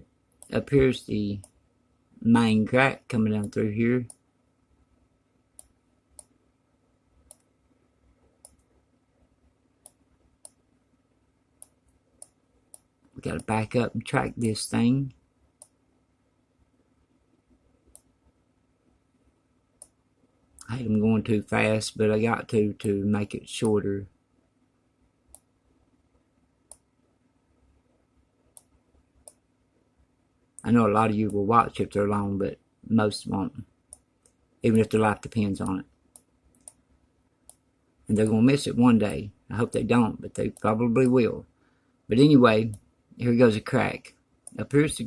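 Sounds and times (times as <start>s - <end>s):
faint steady hum: 0.0s - 45.0s
computer mouse clicking: 5.6s - 6.4s, 7.2s - 7.6s, 8.2s - 8.8s, 9.8s - 10.6s, 11.6s - 13.5s, 17.8s - 18.2s, 26.6s - 27.0s, 28.5s - 29.4s, 35.6s - 38.4s.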